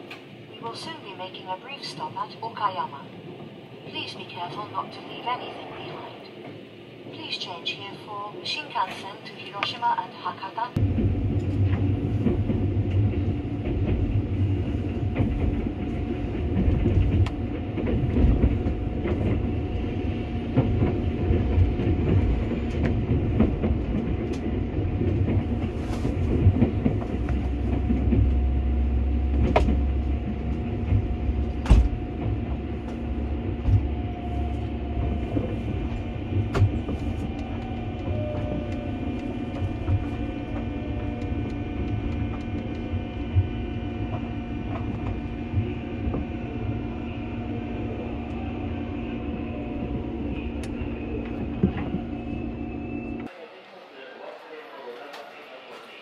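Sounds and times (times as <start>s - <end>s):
train wheels rumbling on rails: 10.7s - 53.3s.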